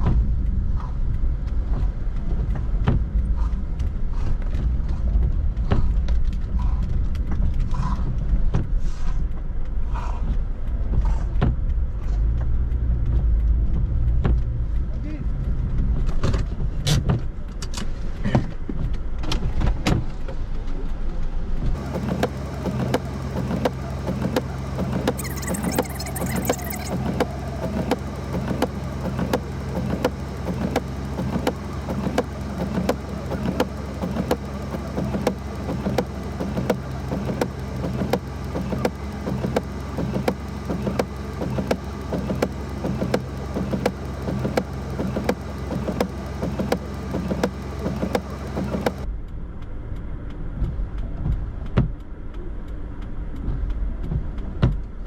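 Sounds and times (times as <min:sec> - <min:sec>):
car engine hum: 0:00.0 - 0:55.0
knocks and clicks: 0:21.8 - 0:49.1
quick even ticking: 0:21.8 - 0:49.1.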